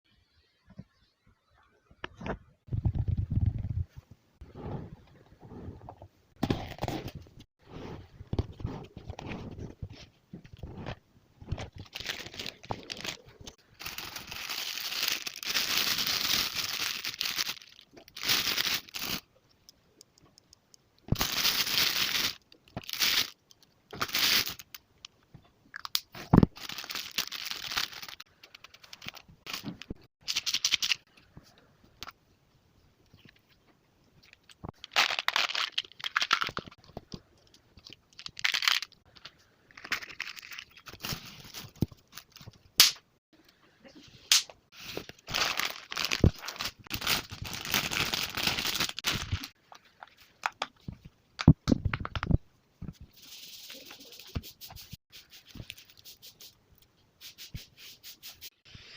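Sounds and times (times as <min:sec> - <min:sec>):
plastic packaging crinkling and tearing: 0:11.6 - 0:19.2, 0:21.1 - 0:24.8, 0:26.5 - 0:31.0, 0:34.8 - 0:36.8, 0:38.1 - 0:39.0, 0:39.7 - 0:42.6, 0:44.8 - 0:49.6
sharp clicks and taps: 0:19.5 - 0:21.0.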